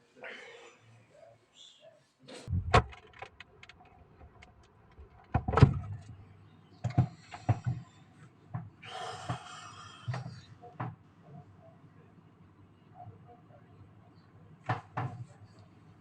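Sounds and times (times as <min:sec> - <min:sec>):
refrigerator door knocks and thumps: 0:02.5 - 0:03.1, 0:05.3 - 0:05.9.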